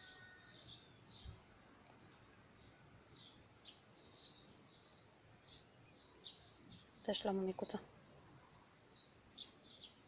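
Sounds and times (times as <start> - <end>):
outdoor background noise: 0.0 - 10.0
songbird chirping: 0.0 - 10.0.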